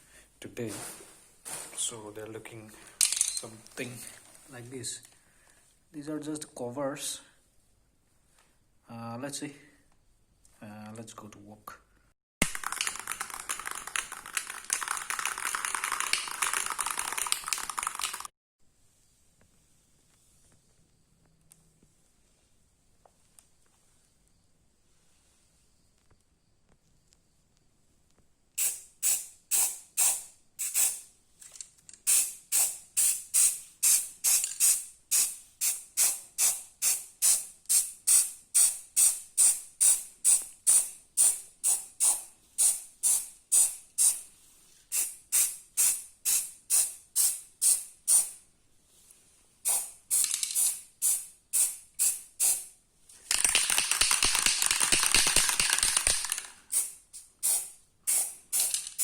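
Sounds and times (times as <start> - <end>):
spray can ball rattling: 12.4 - 18.3, 28.6 - 44.2, 44.9 - 48.4, 49.6 - 59.0
paint spraying hiss: 28.6 - 31.1, 32.0 - 44.3, 44.9 - 48.4, 49.6 - 55.1, 55.7 - 59.0.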